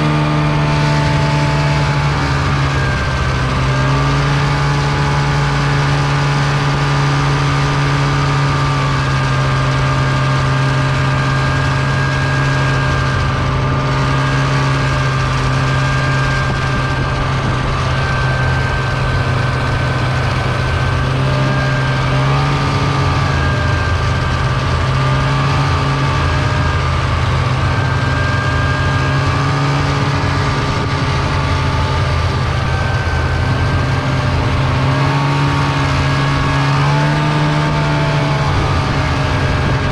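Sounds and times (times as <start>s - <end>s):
snowmobile engine running: 0.0s - 39.9s
track and snow rushing: 0.0s - 39.9s.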